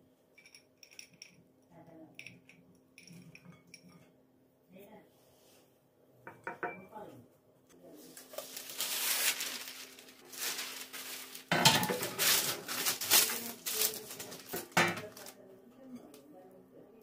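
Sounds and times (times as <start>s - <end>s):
dishes and cutlery clattering: 2.2s - 4.2s, 6.3s - 6.9s, 11.5s - 12.8s, 14.4s - 15.3s.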